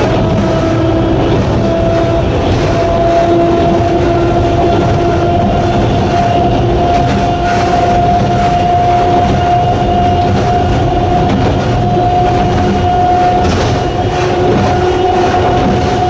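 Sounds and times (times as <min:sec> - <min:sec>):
electric train motor whine: 0:00.0 - 0:16.0
wheels rumbling on rail: 0:00.0 - 0:16.0.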